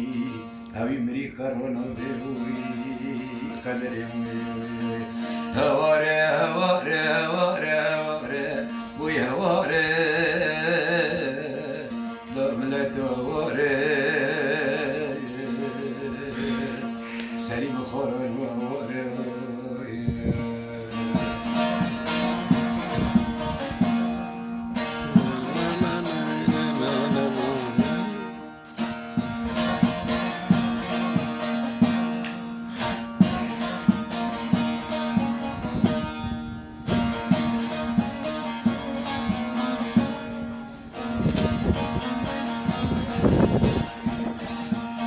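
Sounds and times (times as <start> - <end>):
plucked string instrument: 0.0 - 45.0.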